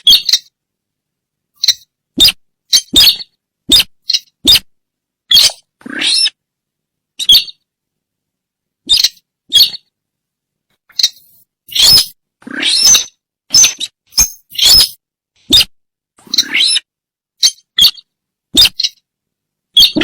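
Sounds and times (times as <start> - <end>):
harsh bird lure calls: 10.9 - 15.6.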